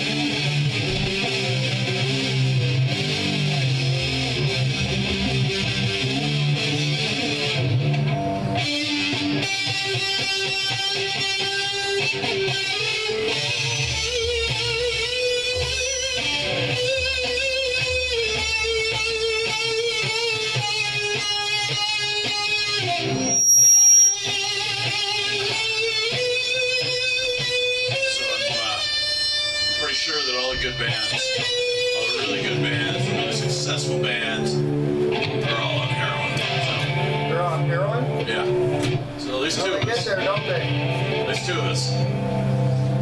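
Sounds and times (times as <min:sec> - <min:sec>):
electric guitar through amplifier: 0:00.0 - 0:43.0
loud high-pitched tone: 0:12.8 - 0:19.0, 0:22.6 - 0:25.6, 0:28.3 - 0:37.5.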